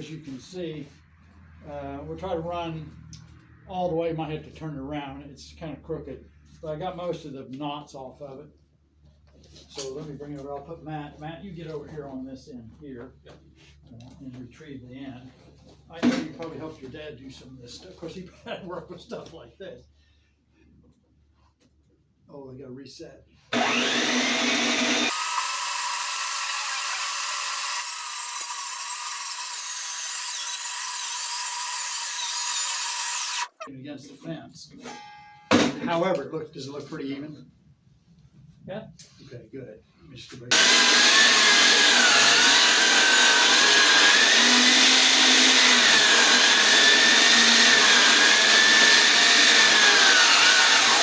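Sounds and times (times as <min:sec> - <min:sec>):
power saw cutting wood: 0:23.5 - 0:33.7, 0:40.5 - 0:51.0.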